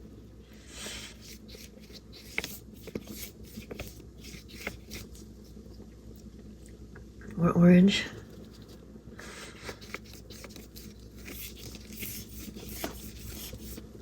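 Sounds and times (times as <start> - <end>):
paintbrush strokes: 9.8 - 13.8.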